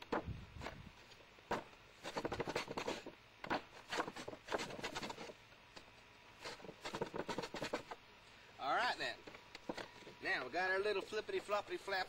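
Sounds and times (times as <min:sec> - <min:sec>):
blade cutting cardboard: 0:01.5 - 0:05.4, 0:06.4 - 0:08.0.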